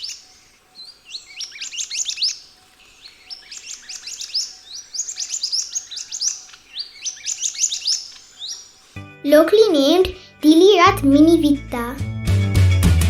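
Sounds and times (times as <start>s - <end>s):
bird whistled calls: 0.0s - 2.4s, 3.0s - 8.8s.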